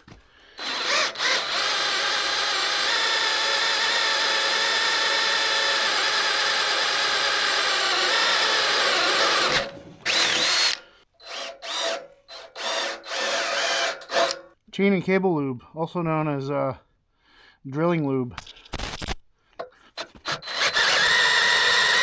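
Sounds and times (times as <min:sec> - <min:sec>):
cordless drill boring through steel: 0:00.5 - 0:14.4, 0:20.0 - 0:22.0.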